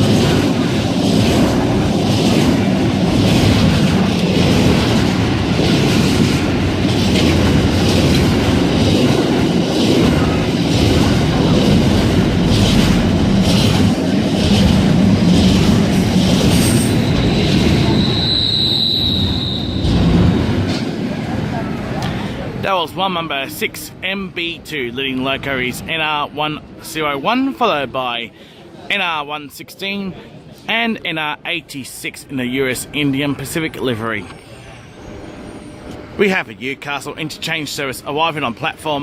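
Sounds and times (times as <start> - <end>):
freight train wagons rolling: 0.0 - 26.1
high wheel squeal: 16.5 - 20.2.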